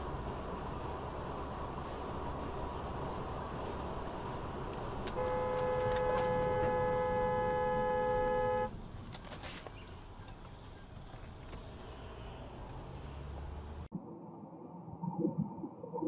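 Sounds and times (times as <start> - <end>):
road and engine noise: 0.0 - 14.0
car horn: 5.1 - 8.8.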